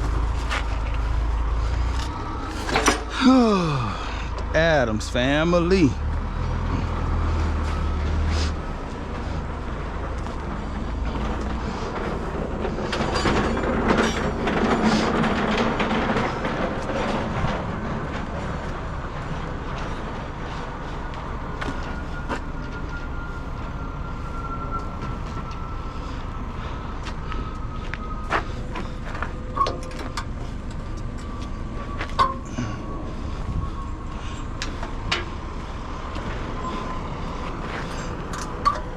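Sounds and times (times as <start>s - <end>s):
diesel machinery rumbling: 0.0s - 38.9s
faint whine dropping in pitch: 0.0s - 38.9s
knocks and clanks: 2.0s - 3.4s, 10.9s - 32.6s.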